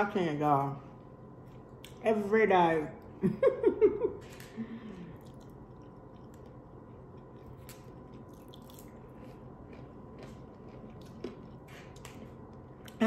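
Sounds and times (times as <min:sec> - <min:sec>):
person chewing food: 0:04.2 - 0:13.0.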